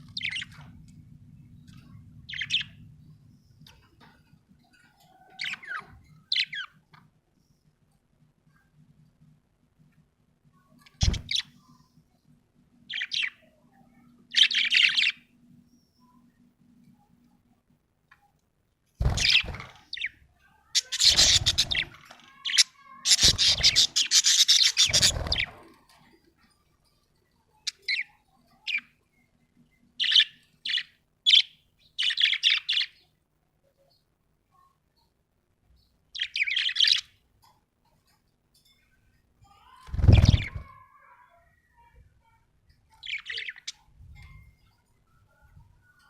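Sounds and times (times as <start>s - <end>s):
budgerigar chirping and chattering: 20.7s - 25.5s.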